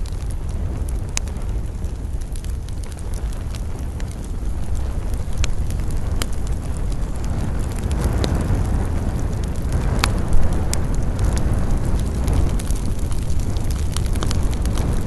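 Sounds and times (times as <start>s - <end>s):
campfire crackling: 0.0s - 15.0s
wind rumbling: 0.0s - 15.0s.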